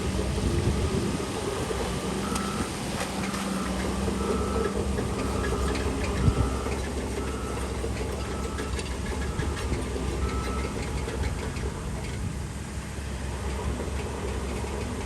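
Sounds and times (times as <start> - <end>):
heavy machine diesel engine: 0.0 - 15.0
reversing alarm beeping: 2.2 - 10.8.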